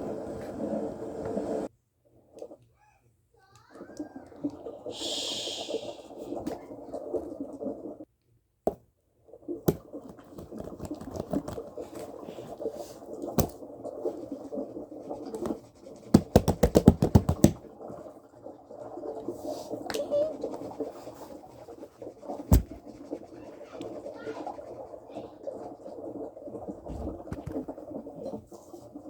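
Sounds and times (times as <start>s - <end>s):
scratching and rustling handling noise: 9.7s - 14.3s.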